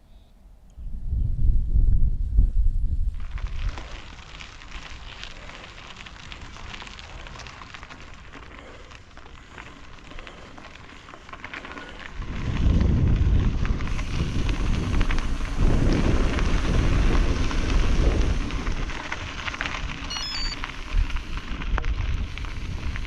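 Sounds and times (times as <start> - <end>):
wind buffeting microphone: 0.8 - 4.9, 11.9 - 23.0
steady crackle: 3.0 - 23.0.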